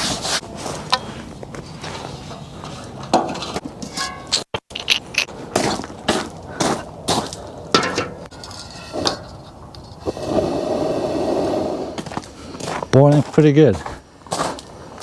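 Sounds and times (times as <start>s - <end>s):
knocks and clinks: 7.8s - 9.4s.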